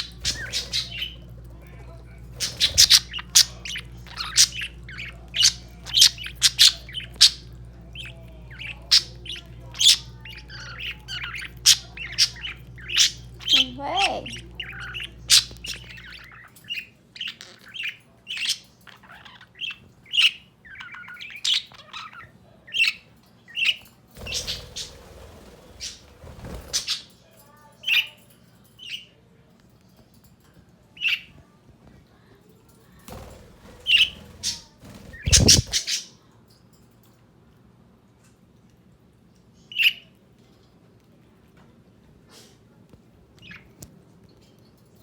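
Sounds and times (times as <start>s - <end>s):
budgerigars chirping and squawking: 0.0s - 27.1s, 33.1s - 36.2s, 39.7s - 40.1s, 43.4s - 43.8s.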